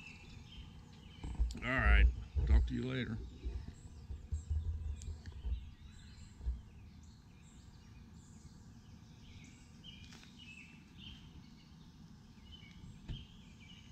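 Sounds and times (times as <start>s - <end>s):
low outdoor rumble: 0.0s - 10.0s
birds chirping: 0.0s - 13.9s.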